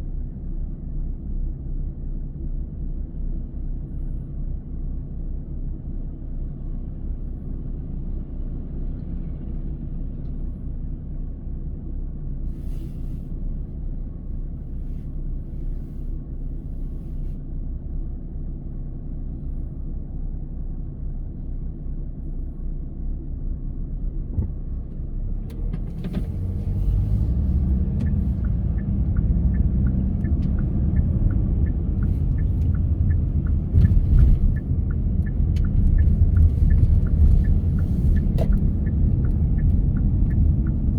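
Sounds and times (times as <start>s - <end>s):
car engine and tyres rumbling: 0.0s - 40.9s
light ticks: 27.3s - 40.9s.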